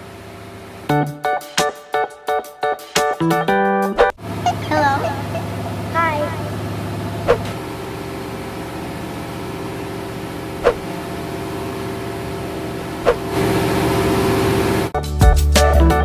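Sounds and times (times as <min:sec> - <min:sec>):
engine room machinery hum: 0:00.0 - 0:01.7, 0:04.0 - 0:15.0
guitar music: 0:00.9 - 0:06.7, 0:15.0 - 0:16.0.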